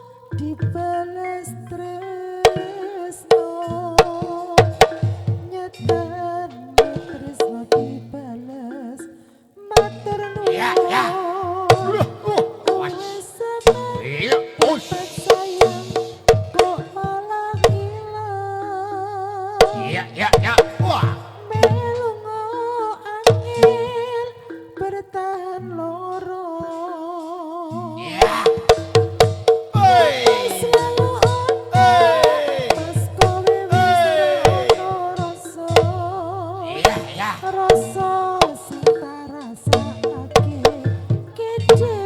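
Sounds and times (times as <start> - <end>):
sliding melody instrument: 0.0 - 42.0
hand drum strikes: 2.4 - 25.1, 26.6 - 42.0
melody ensemble playing: 31.6 - 35.6.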